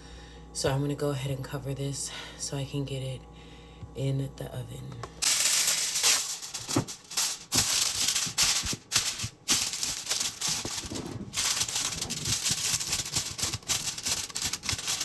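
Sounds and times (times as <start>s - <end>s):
aluminium foil crinkling: 5.2s - 15.0s.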